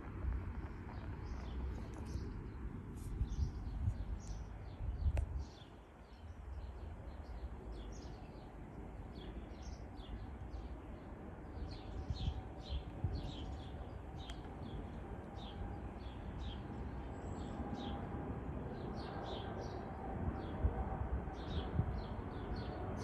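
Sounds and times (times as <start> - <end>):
small birds chirping: 0.6 - 18.0.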